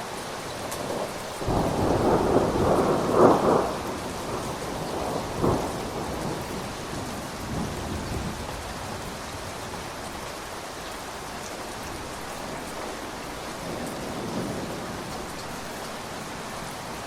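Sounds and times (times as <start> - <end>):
heavy rain: 0.0 - 17.0
thunder rumbling: 0.8 - 10.0.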